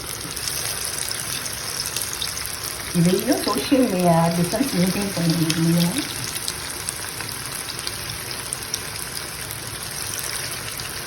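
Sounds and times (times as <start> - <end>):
oil crackles and pops: 0.0 - 3.7, 4.3 - 11.0
chicken deep-frying in oil: 0.0 - 11.0.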